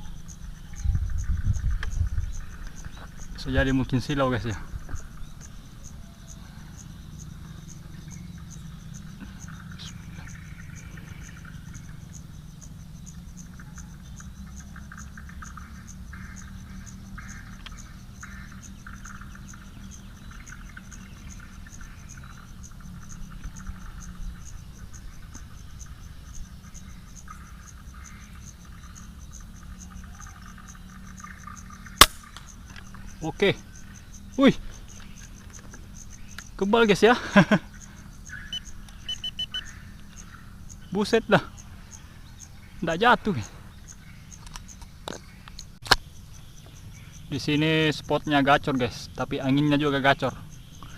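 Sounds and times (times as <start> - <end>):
wind on microphone: 0.0 - 3.8
patchy insect buzzing: 0.0 - 48.5
insect chirping: 0.0 - 50.9.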